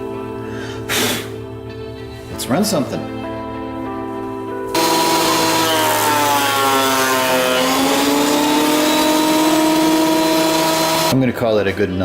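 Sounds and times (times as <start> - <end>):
planer cutting a board: 4.8 - 11.2.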